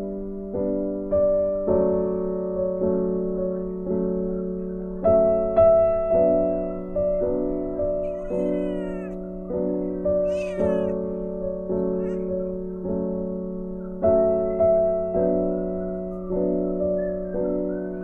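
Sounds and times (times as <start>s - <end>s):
gentle piano music: 0.0s - 18.0s
kitten mewing: 8.0s - 9.2s, 10.2s - 11.0s, 12.0s - 12.5s.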